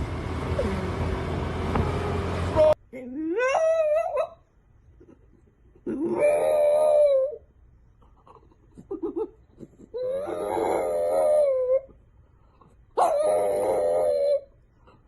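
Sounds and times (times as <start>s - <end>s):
dog yipping: 3.4s - 4.4s, 5.9s - 7.4s, 8.9s - 11.9s, 13.0s - 14.5s
dog howling: 5.9s - 7.4s, 10.0s - 11.9s, 13.0s - 14.5s.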